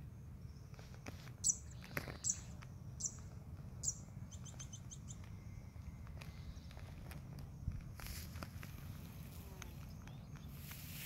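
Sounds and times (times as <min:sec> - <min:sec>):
small bird chirping: 0:00.0 - 0:11.0.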